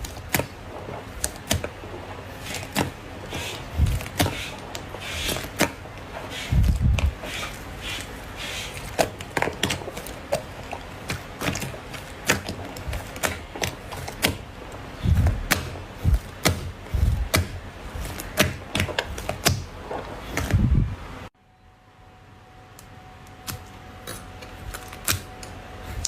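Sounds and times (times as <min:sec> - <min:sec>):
low heavy squelching thuds: 0:08.8 - 0:21.1.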